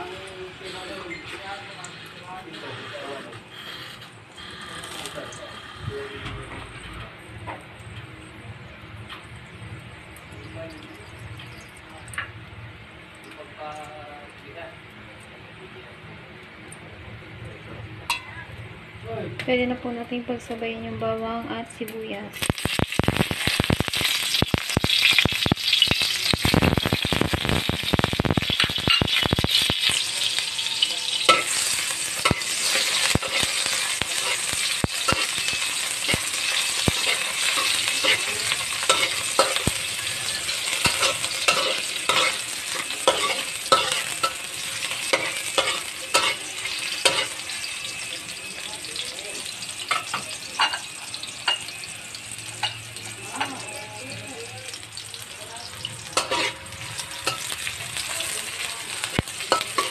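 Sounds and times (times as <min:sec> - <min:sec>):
garlic and onion sizzling in oil: 0:00.0 - 0:05.8, 0:07.4 - 0:14.9, 0:19.6 - 0:59.9
metal spatula scraping wok: 0:02.0 - 0:05.9, 0:28.3 - 0:48.1, 0:55.6 - 0:59.9.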